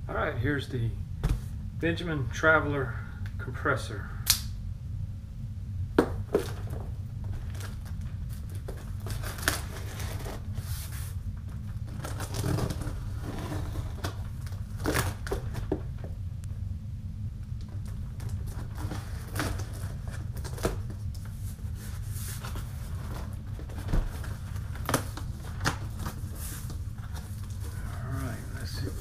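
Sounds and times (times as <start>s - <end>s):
steady low hum: 0.0s - 29.0s
cardboard tearing and crinkling: 7.4s - 11.0s, 11.9s - 15.7s, 18.2s - 21.0s.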